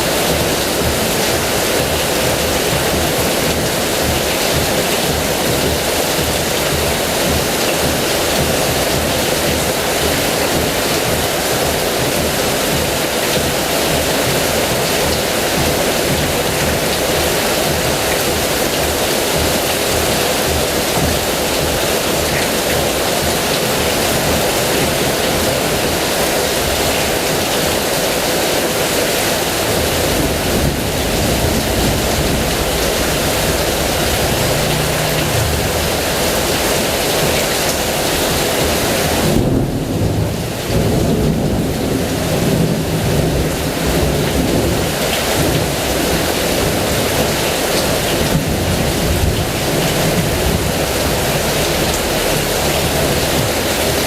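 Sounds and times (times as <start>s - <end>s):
heavy rain falling: 0.0s - 54.0s
thunder rumbling: 29.0s - 54.0s.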